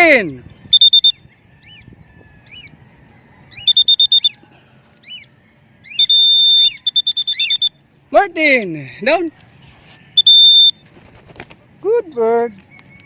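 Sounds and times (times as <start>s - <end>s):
small birds chirping: 0.0s - 7.8s
high beeping tone: 0.7s - 1.2s, 3.6s - 4.4s, 6.0s - 7.8s.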